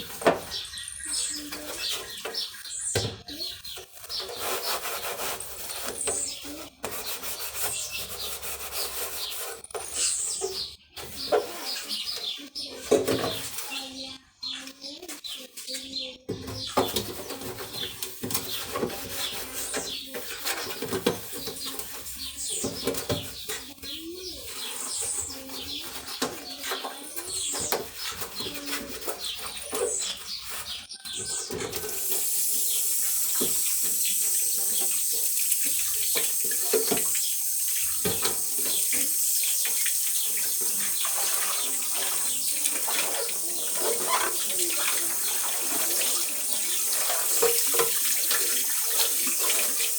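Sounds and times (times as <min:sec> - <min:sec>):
birds chirping: 0:00.0 - 0:05.0, 0:05.6 - 0:49.9
clattering of things being handled: 0:16.3 - 0:23.7
water running from tap: 0:31.2 - 0:49.9.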